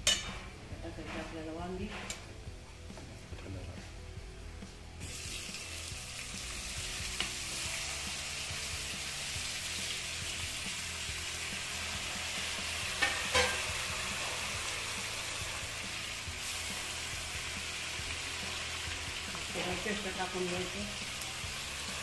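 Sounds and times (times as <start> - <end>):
metal clinks against pan: 0.0 - 0.4
vegetables frying in hot oil: 5.0 - 22.0.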